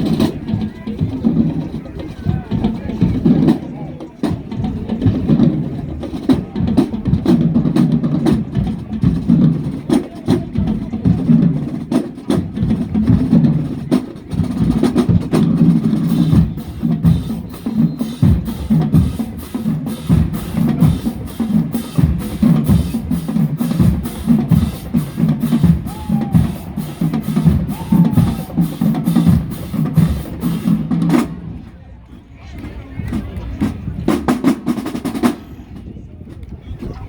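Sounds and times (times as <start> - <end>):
snare drums: 0.0 - 31.8, 32.6 - 35.6
bass drums: 4.3 - 31.4.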